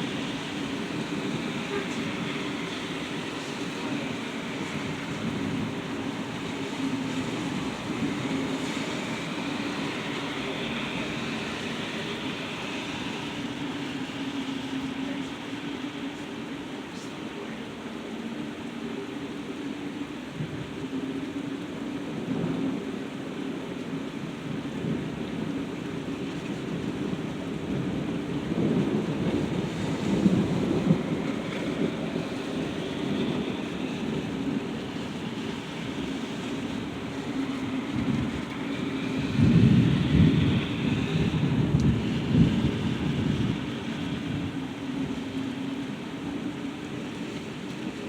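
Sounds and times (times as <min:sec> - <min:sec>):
steady rain: 0:00.0 - 0:48.0
rolling thunder: 0:26.7 - 0:35.0, 0:37.9 - 0:45.2.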